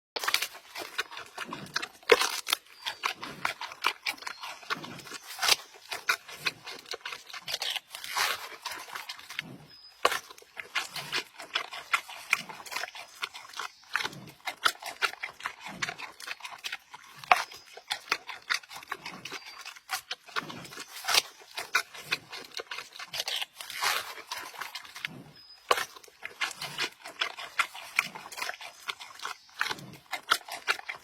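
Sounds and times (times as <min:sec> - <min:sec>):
panda crunching and snapping: 0:00.2 - 0:31.0.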